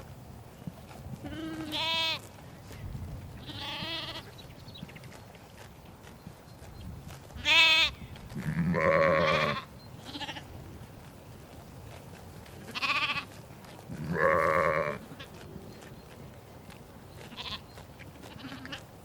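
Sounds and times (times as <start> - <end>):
sheep bleating: 1.2 - 2.3, 3.4 - 4.3, 7.4 - 10.5, 12.7 - 15.4, 17.3 - 18.8.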